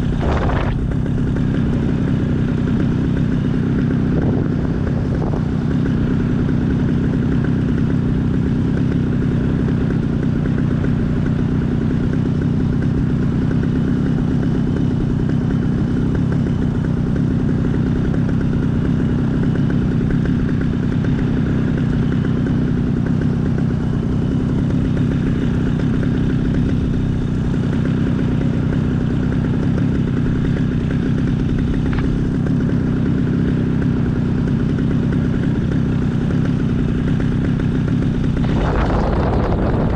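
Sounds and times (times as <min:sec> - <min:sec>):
air rushing over microphone: 0:00.0 - 0:01.2, 0:38.3 - 0:39.9
small aircraft engine running: 0:00.0 - 0:39.9.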